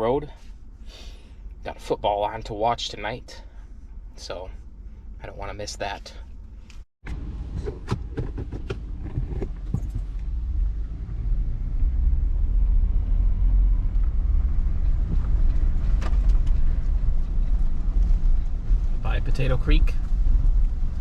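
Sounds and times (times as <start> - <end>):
truck engine and road rumble: 0.0 - 21.0
sharp clicks and knocks: 7.1 - 10.2.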